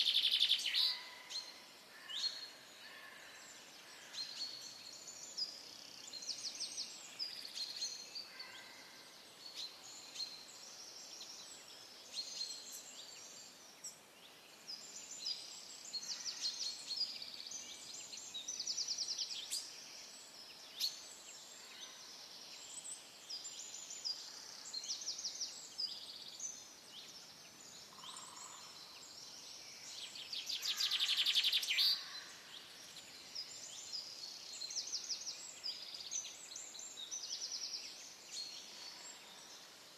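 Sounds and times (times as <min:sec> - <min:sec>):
faint steady hiss: 0:00.0 - 0:39.9
songbirds trilling and chirping: 0:00.0 - 0:39.9.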